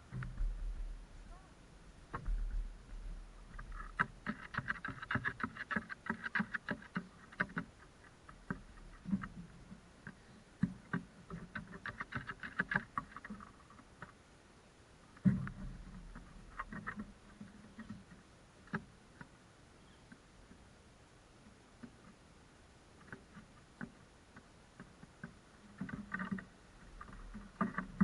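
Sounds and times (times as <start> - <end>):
rapid irregular tapping and clicking: 3.5 - 14.2, 15.2 - 19.4, 23.0 - 28.0.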